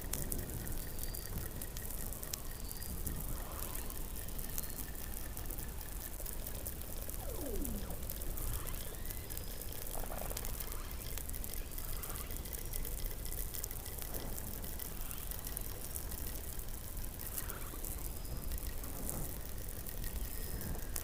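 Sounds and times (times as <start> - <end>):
faint crackling clicks: 0.0 - 21.0
steady hiss: 0.0 - 21.0
underwater animal calls: 7.2 - 8.8.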